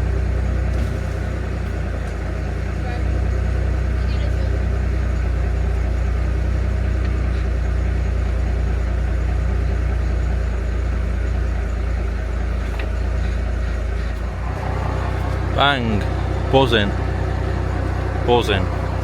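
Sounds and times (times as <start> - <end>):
low mechanical drone: 0.0 - 19.0.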